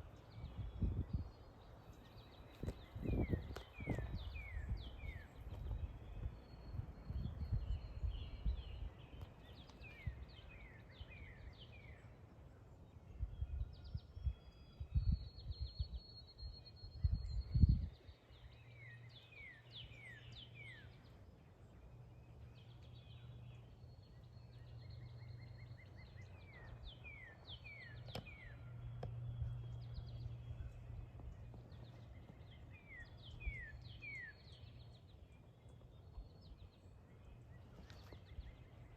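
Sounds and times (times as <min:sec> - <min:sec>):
wind buffeting microphone: 0:00.0 - 0:11.7, 0:13.1 - 0:18.2
songbirds chirping: 0:00.0 - 0:38.9.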